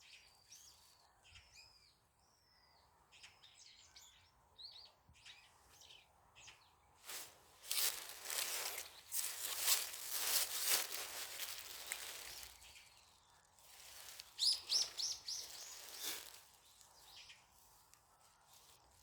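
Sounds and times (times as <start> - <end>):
songbird chirping: 0.0 - 19.0.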